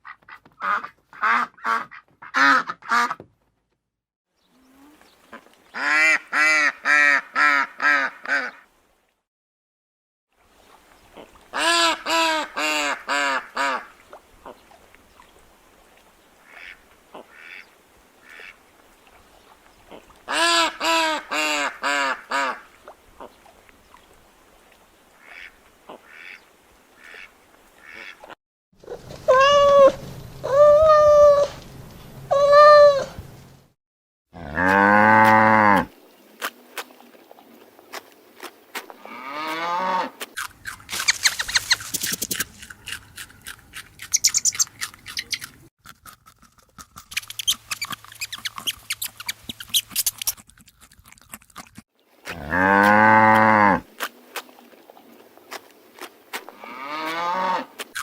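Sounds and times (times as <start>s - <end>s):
duck quacking: 0.0s - 3.2s, 5.8s - 8.6s, 11.2s - 14.6s, 16.4s - 18.6s, 19.9s - 22.6s, 25.2s - 26.4s, 27.0s - 28.4s.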